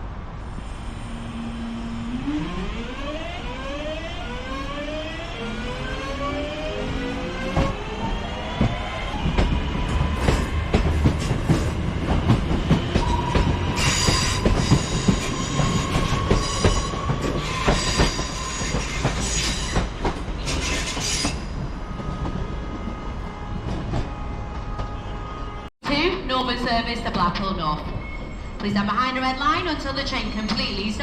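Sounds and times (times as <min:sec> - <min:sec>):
train wheels clicking over rail joints: 0:08.6 - 0:21.6.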